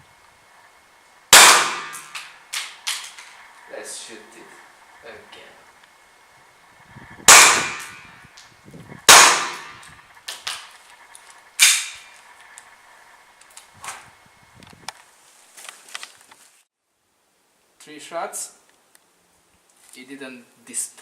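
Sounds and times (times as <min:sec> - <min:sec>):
airsoft pistol firing: 0:01.3 - 0:03.1, 0:07.3 - 0:08.1, 0:09.1 - 0:09.8.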